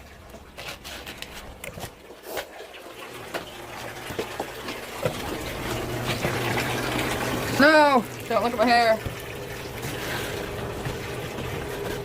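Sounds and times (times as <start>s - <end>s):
low steady hum: 0.0s - 12.0s
tap running into bathtub: 0.0s - 12.0s.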